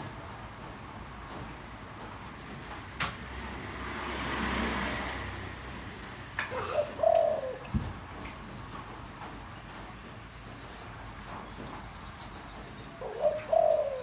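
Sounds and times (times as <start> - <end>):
vehicle passing: 3.2 - 7.7
dove cooing: 6.4 - 8.3, 12.8 - 14.0.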